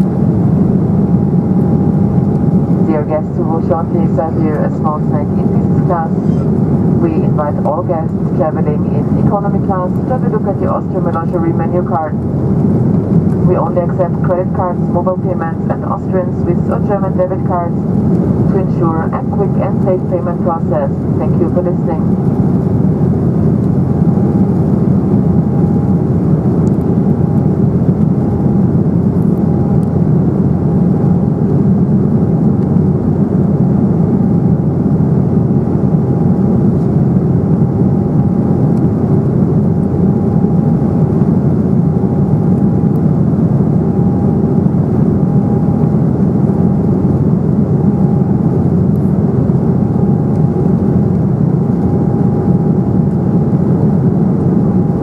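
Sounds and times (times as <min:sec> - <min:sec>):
drone of jet engines: 0:00.0 - 0:55.0
faint whine: 0:00.0 - 0:55.0.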